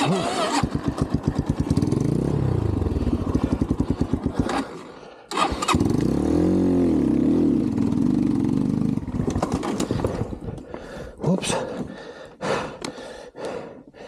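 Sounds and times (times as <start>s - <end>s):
dirt bike engine stalling and revving: 0.0s - 10.5s.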